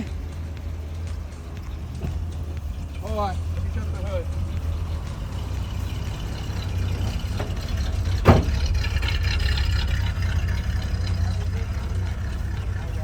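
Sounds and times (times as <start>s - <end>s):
pickup engine idling: 0.0s - 13.0s
hood slammed shut: 5.6s - 12.8s.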